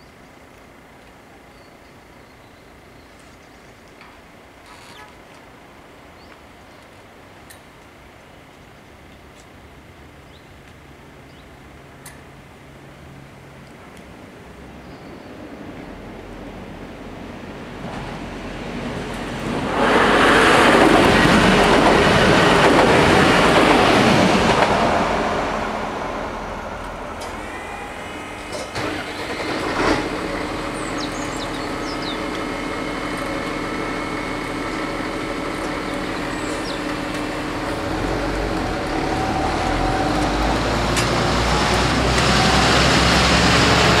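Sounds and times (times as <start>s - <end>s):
train passing: 11.1s - 44.0s
car engines rumbling: 24.4s - 44.0s
crossing barrier motor hum: 25.5s - 44.0s.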